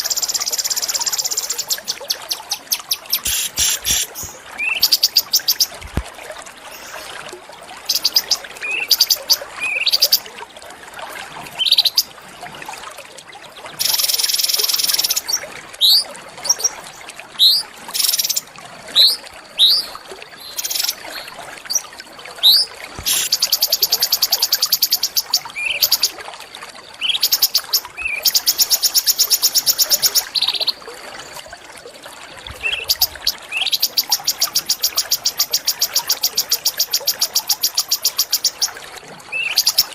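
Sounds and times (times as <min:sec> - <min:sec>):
small songbirds singing: 0:00.0 - 0:05.8.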